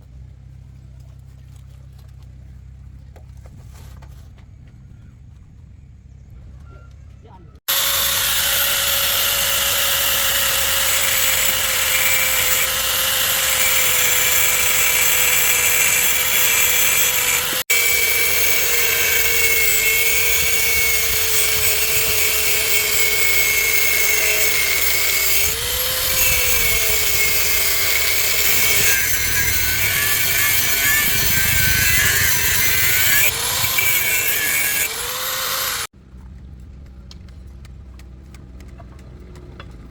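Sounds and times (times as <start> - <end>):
handheld power tool running: 7.7 - 35.9.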